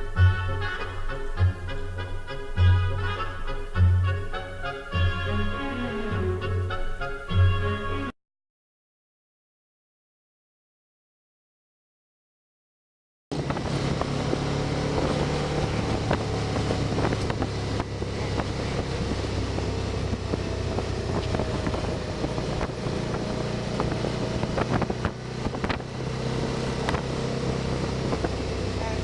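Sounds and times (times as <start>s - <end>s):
wind noise on microphone: 0.0s - 7.7s, 13.3s - 29.0s
motorcycle engine running: 13.3s - 29.0s.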